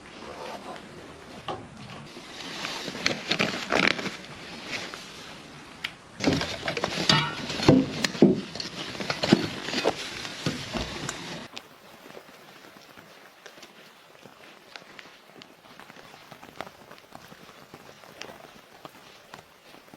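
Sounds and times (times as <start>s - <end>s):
irregular knocks and clatters: 6.2s - 11.5s
small ticks: 11.5s - 19.9s.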